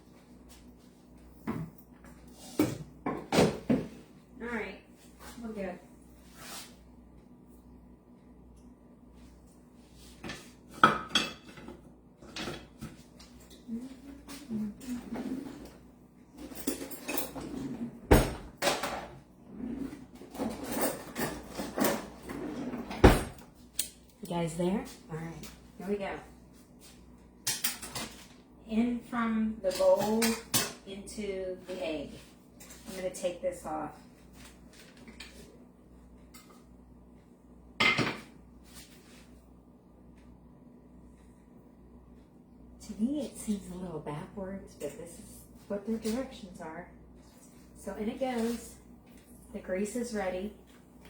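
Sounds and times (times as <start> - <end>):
dishes and utensils clattering: 16.4 - 17.8, 20.3 - 22.4.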